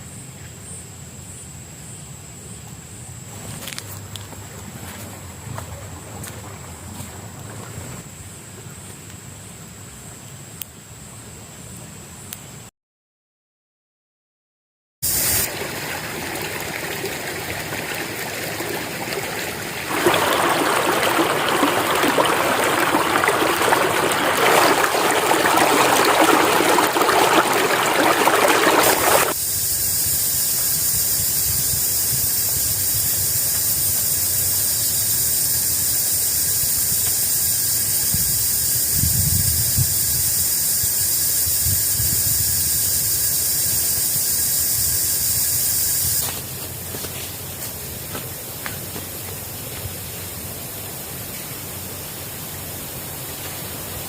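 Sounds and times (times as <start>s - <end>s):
water rushing: 15.0s - 29.4s.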